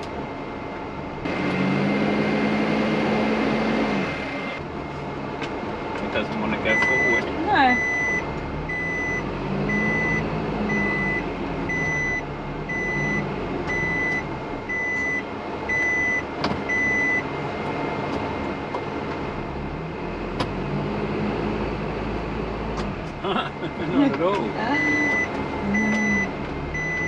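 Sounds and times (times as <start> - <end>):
truck diesel engine labouring: 0.0 - 27.0
reversing beeper: 6.6 - 17.2, 24.7 - 27.0.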